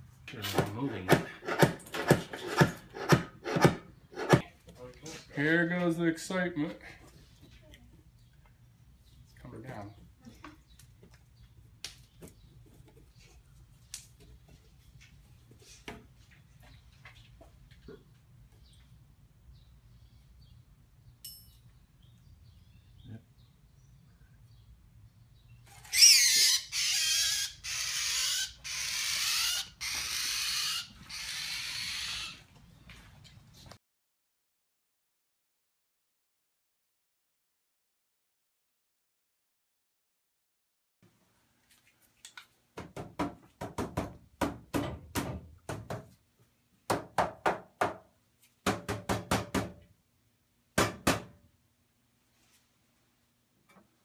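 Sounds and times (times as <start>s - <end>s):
sharp knocking and banging: 0.5s - 4.5s
birds giving raspy calls: 25.8s - 32.5s.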